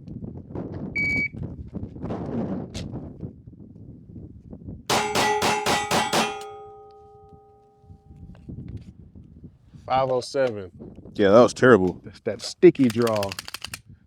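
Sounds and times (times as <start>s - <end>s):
shot timer beep: 1.0s - 1.3s
metallic ringing: 4.9s - 8.2s.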